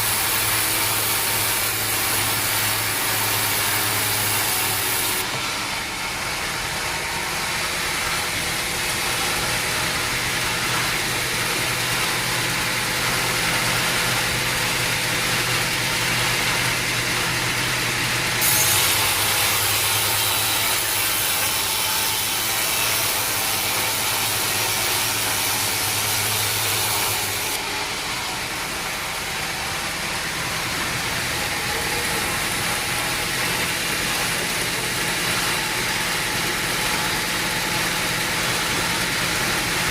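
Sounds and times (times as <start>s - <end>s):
sawmill machinery hum: 0.0s - 39.9s.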